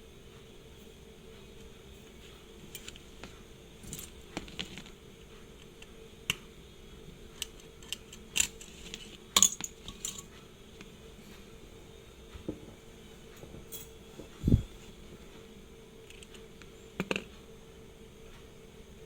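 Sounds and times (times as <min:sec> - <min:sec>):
small metal tools clinking: 0:09.4 - 0:10.3.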